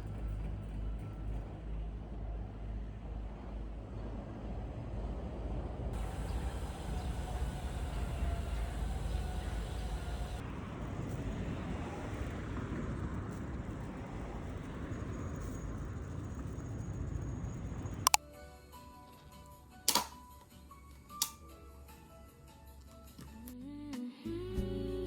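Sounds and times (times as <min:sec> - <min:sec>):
moving vehicle rumble: 0:00.0 - 0:18.2
hiss: 0:06.0 - 0:10.4.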